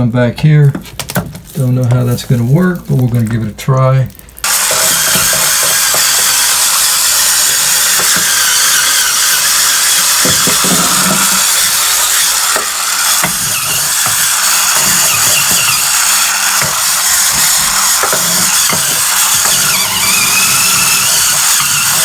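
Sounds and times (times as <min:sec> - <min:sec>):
spinning bristles hissing: 0:04.4 - 0:22.0.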